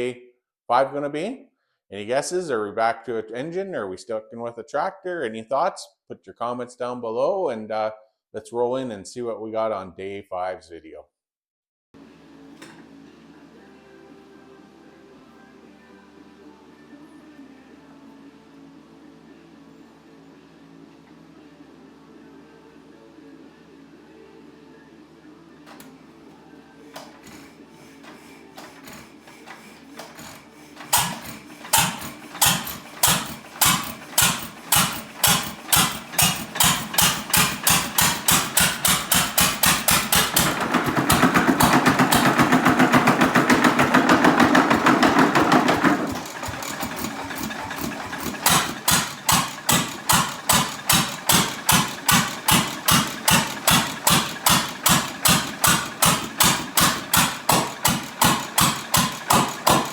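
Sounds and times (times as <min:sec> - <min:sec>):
stationary engine exhaust pulses: 0:27.1 - 0:59.9.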